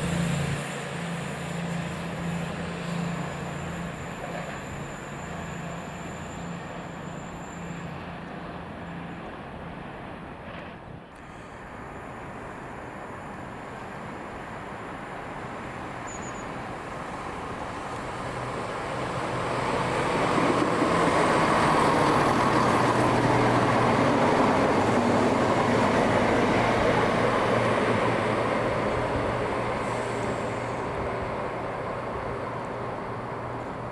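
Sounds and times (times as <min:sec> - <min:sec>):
diesel train rumbling past: 0:00.0 - 0:33.9.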